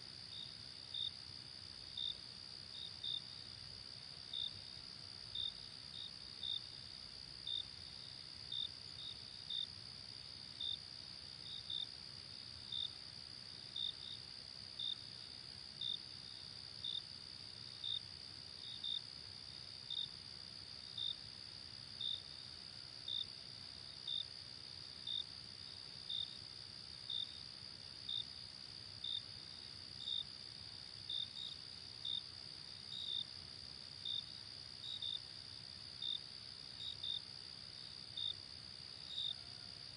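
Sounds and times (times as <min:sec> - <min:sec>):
insect trill: 0:21.8 - 0:39.9.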